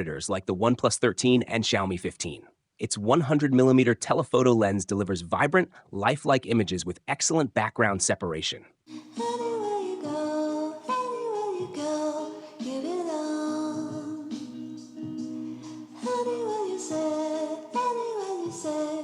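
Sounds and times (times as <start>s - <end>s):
background music: 8.9s - 19.0s
woman singing: 8.9s - 19.0s.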